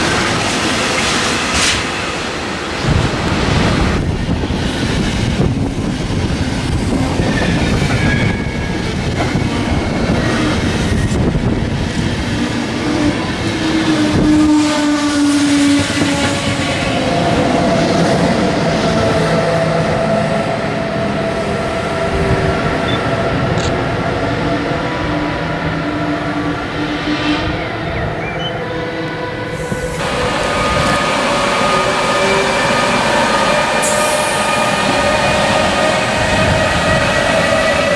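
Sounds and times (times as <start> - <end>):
train wheels rolling on rails: 0.0 - 37.9.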